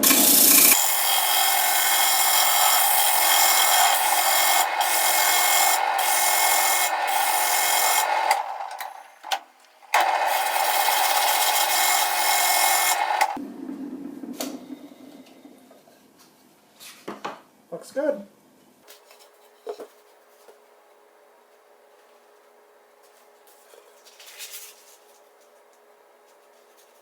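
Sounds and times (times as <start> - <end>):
lathe humming: 0.0 - 13.4
sandpaper rasping on spinning wood: 0.2 - 8.6.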